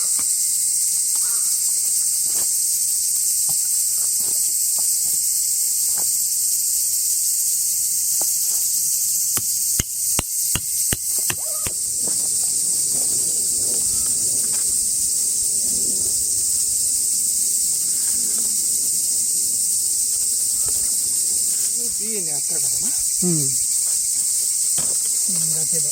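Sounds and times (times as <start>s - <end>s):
insects chorus: 0.0s - 25.9s
sharp knocks: 9.4s - 11.8s.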